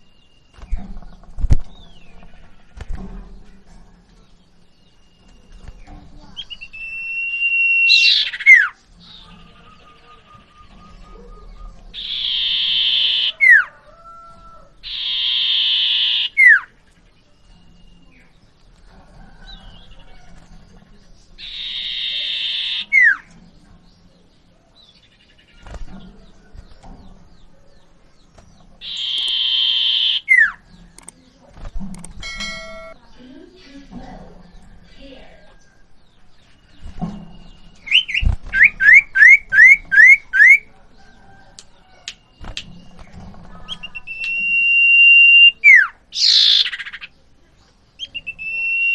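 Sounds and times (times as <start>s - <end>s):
soft bird chirps: 0.0s - 48.9s
bird buzzy trill and whistle: 6.4s - 13.8s, 14.8s - 16.8s, 21.4s - 23.3s, 28.8s - 30.6s, 36.8s - 40.7s, 42.4s - 47.1s, 48.0s - 48.9s.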